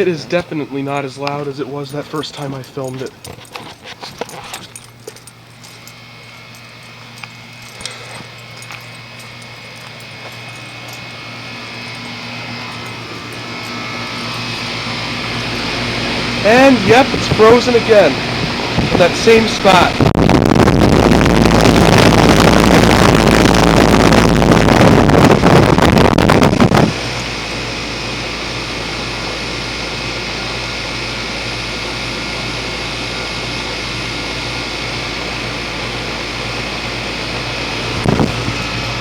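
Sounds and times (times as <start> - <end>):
heat pump compressor humming: 0.0 - 39.0
wind buffeting microphone: 19.9 - 27.0, 37.9 - 38.7.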